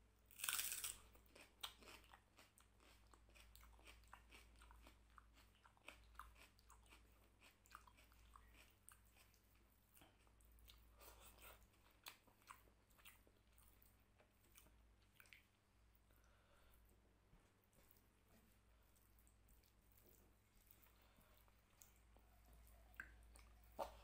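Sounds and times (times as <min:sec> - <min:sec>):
crunching bite into onion: 0:00.3 - 0:01.0
crunchy chewing: 0:00.3 - 0:15.4.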